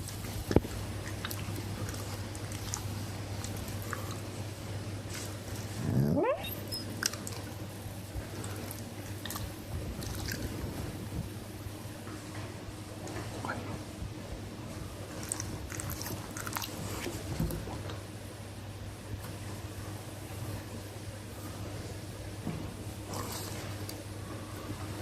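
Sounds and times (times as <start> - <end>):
dog licking and chewing: 0.0 - 4.3, 8.3 - 10.6, 15.1 - 17.9
steady low hum: 0.0 - 25.0.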